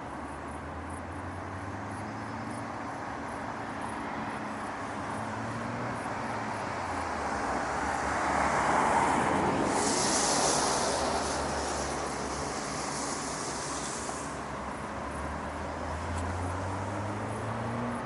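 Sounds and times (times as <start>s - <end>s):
low hum of traffic: 0.0s - 18.0s
vehicle passing: 1.3s - 18.0s
high hiss: 6.2s - 16.7s.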